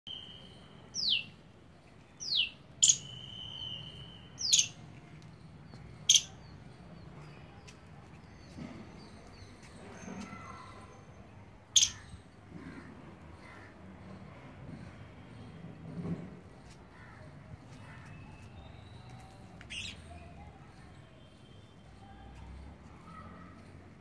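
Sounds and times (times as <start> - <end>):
sharp bird chirps: 0.1 - 1.4, 2.2 - 4.8, 6.0 - 6.6, 11.7 - 12.2
birds calling shrilly: 2.2 - 4.8, 6.0 - 6.5, 11.7 - 13.7, 17.8 - 22.1
steady high whistle: 3.0 - 4.4.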